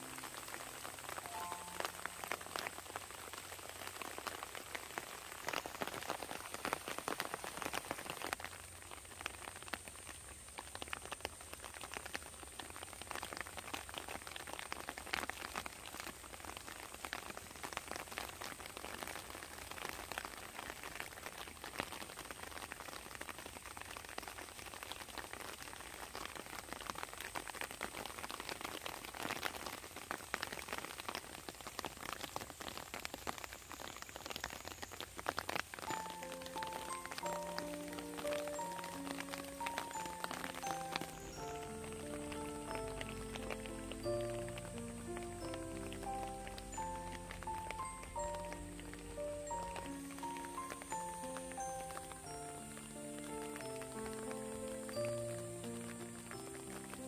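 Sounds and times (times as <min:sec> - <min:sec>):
rain falling on water: 0:00.0 - 0:57.0.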